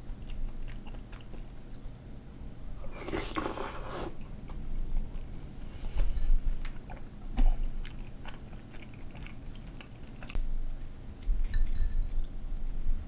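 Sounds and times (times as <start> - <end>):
chewing noodles: 0.1 - 2.1, 6.6 - 10.4.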